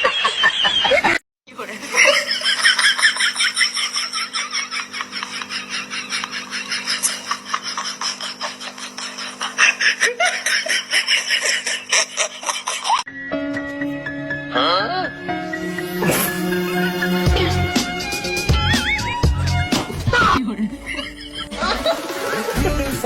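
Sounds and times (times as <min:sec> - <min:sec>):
person laughing heartily: 0:00.0 - 0:13.1, 0:17.2 - 0:17.8, 0:19.9 - 0:22.9
music: 0:13.1 - 0:23.0.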